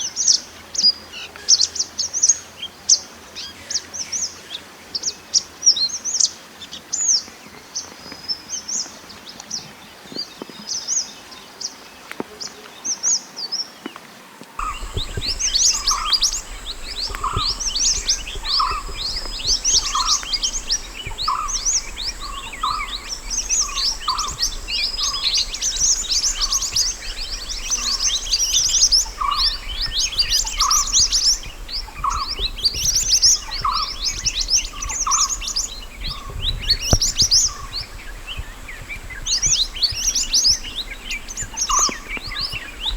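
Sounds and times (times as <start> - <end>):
low hum: 14.6 - 41.5
bird chirps and trills: 14.6 - 42.9
faint high whine: 14.6 - 42.9.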